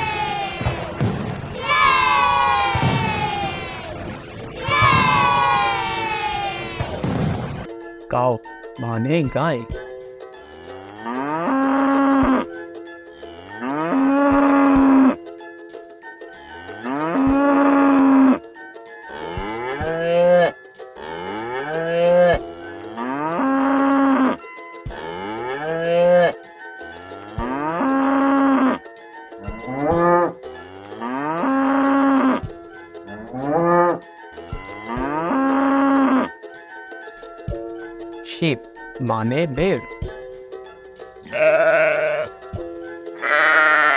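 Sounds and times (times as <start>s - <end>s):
cow mooing: 10.5s - 12.4s, 19.1s - 24.4s, 25.0s - 26.3s, 27.2s - 28.8s, 29.7s - 32.4s, 34.9s - 36.3s, 41.3s - 42.3s, 43.2s - 43.9s.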